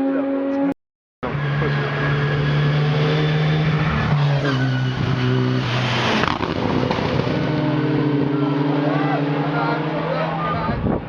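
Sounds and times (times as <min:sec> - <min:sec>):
race car engine revving: 0:00.0 - 0:11.0
car passing by: 0:01.5 - 0:10.9.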